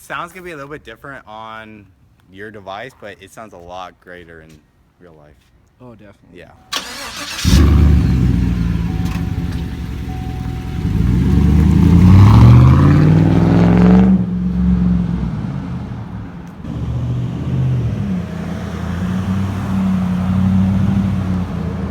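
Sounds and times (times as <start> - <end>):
loud engine revving and idling: 7.1 - 21.9.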